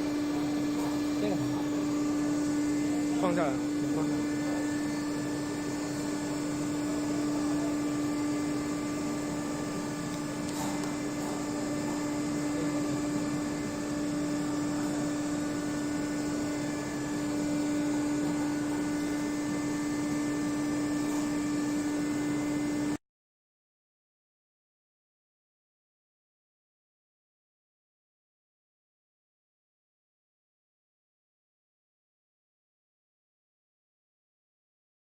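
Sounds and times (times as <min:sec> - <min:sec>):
welding machine hum: 0:00.0 - 0:23.0.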